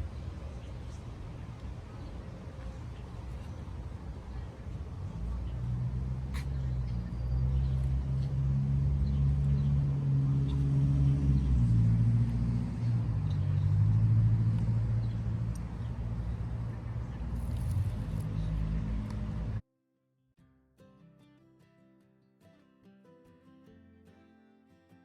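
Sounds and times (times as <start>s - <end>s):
engine humming: 0.0s - 19.6s.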